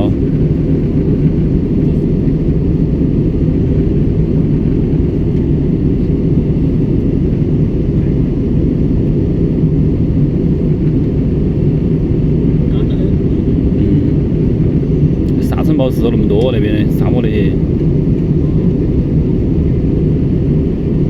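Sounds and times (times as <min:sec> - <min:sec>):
airliner cabin engine drone: 0:00.0 - 0:21.0.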